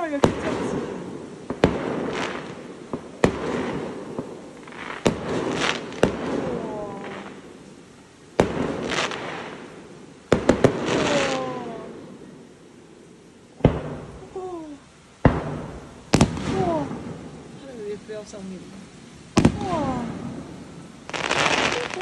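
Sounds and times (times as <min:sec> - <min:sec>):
echo and crackle of fireworks: 0:00.0 - 0:18.5, 0:19.3 - 0:22.0
firework shells bursting: 0:15.2 - 0:17.4, 0:19.3 - 0:20.4, 0:21.1 - 0:22.0.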